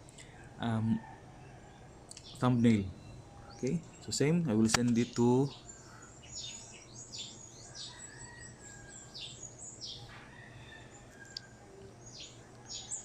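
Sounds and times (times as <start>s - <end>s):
birds chirping: 0.2s - 13.0s.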